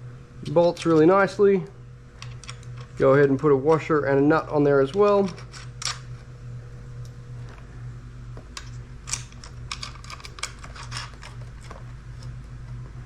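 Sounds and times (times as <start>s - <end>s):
steady low hum: 0.0s - 13.0s
metal washers and nuts clicking: 8.6s - 12.4s.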